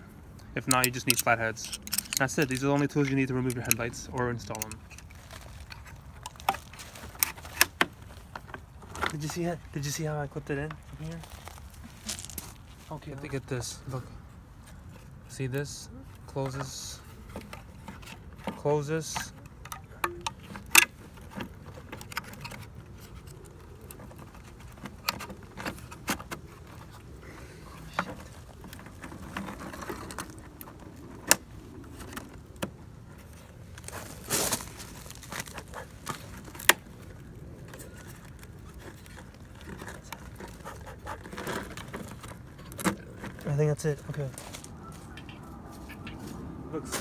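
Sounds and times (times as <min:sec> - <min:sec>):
scraping rustle: 0:00.7 - 0:15.4, 0:20.4 - 0:47.0
plastic and metal clicks and taps: 0:19.2 - 0:20.9.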